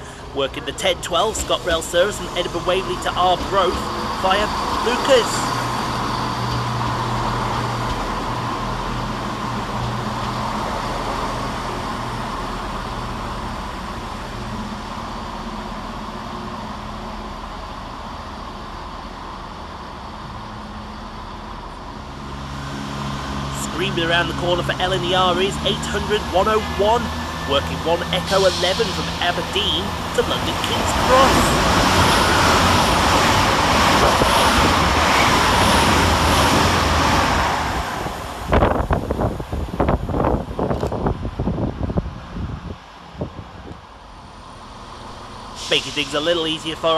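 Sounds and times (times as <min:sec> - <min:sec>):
diesel train engine humming: 0:00.0 - 0:46.9
wind buffeting microphone: 0:31.3 - 0:37.4, 0:38.0 - 0:44.0.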